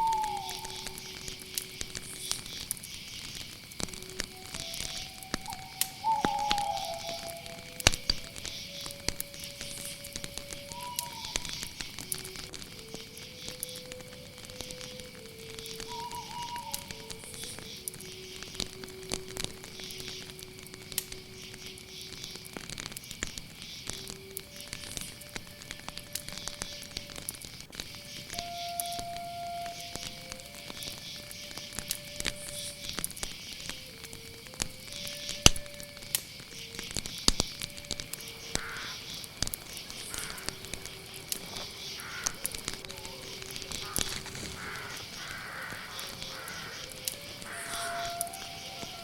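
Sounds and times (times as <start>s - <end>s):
crickets chirring: 0.0s - 49.0s
wood fire crackling and popping: 0.0s - 49.0s
soft slow music: 3.7s - 22.6s, 23.9s - 38.6s, 46.8s - 49.0s.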